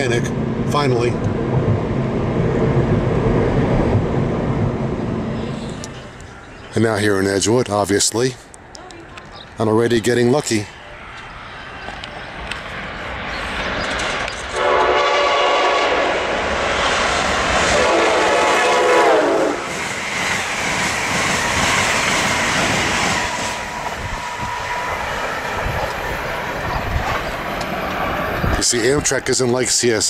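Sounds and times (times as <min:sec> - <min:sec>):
passenger train passing: 0:00.0 - 0:30.0
train horn blasts: 0:14.5 - 0:16.4, 0:17.7 - 0:19.7.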